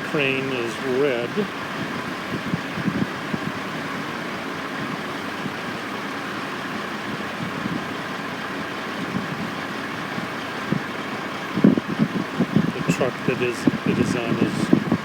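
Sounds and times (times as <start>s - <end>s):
construction machinery running: 0.0s - 15.0s
truck engines running: 0.0s - 15.0s.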